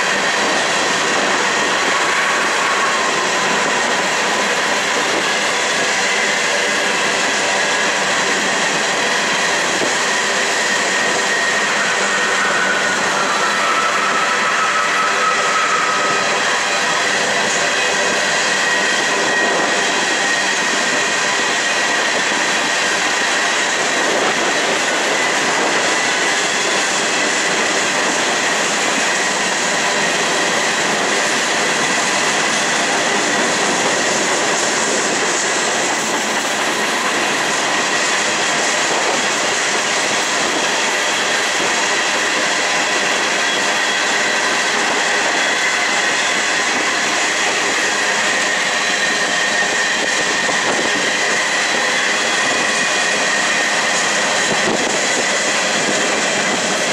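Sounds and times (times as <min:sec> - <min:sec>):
freight train wheels rumbling: 0:00.0 - 0:56.9
high wheel squeal: 0:00.0 - 0:56.9.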